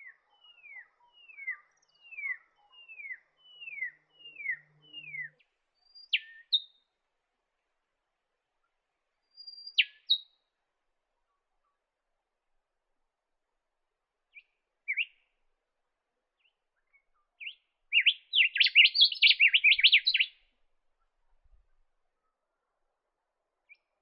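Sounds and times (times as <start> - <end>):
bird call: 0.0 - 6.8, 9.3 - 10.4, 16.4 - 20.4
bird whistling notes: 17.4 - 20.4.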